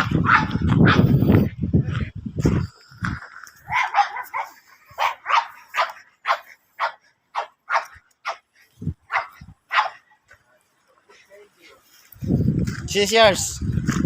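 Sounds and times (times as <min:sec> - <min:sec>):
puppy barking: 0:00.0 - 0:01.2, 0:03.7 - 0:08.4, 0:09.1 - 0:10.1.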